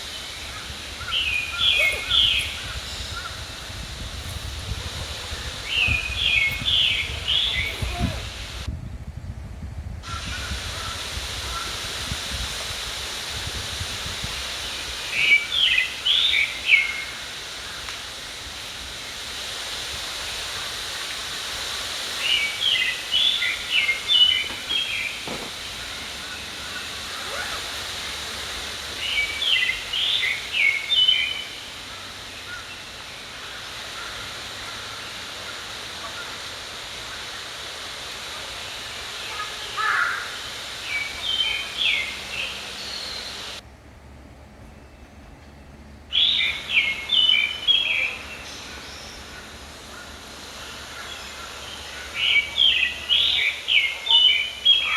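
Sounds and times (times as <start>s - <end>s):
mountain stream rushing: 0.0s - 8.7s, 10.4s - 43.6s
songbird singing: 0.0s - 9.4s, 14.1s - 54.9s.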